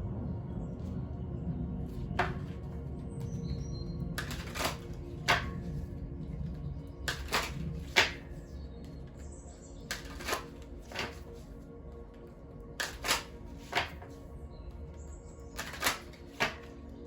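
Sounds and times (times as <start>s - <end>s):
soft background music: 0.0s - 17.0s
cards shuffled and laid down: 4.2s - 5.7s, 7.1s - 8.4s, 9.9s - 11.5s, 12.8s - 14.2s, 15.6s - 16.7s.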